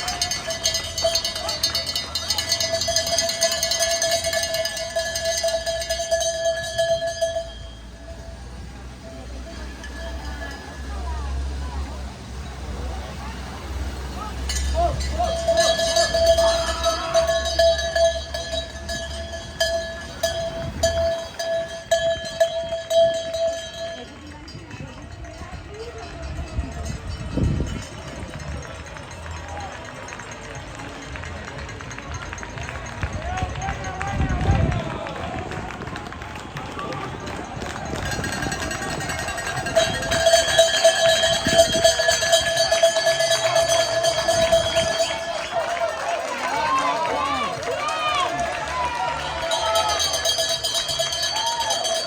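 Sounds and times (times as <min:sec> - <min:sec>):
steady ringing tone: 0:00.0 - 0:11.3, 0:14.5 - 0:24.4, 0:38.1 - 0:45.5
cowbells clanging: 0:00.0 - 0:12.6, 0:13.2 - 0:34.5, 0:36.9 - 0:52.0.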